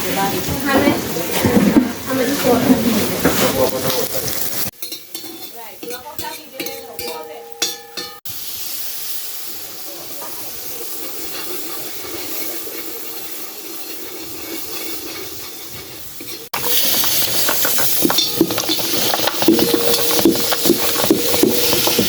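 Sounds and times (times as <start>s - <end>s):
food sizzling in a pot: 0.0s - 22.0s
spoon scraping a pot: 4.8s - 8.2s, 11.0s - 22.0s.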